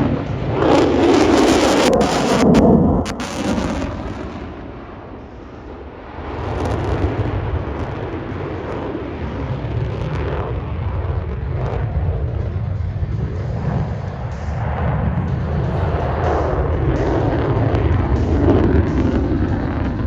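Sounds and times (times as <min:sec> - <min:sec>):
jet engine roar: 0:00.0 - 0:20.0.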